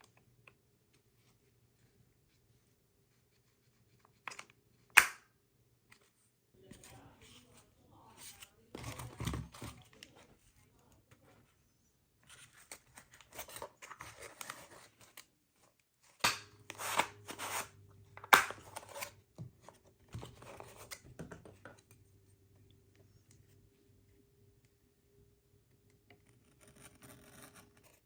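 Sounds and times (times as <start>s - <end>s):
scissors cutting cardboard: 16.2s - 17.7s, 18.3s - 21.1s, 26.4s - 28.0s.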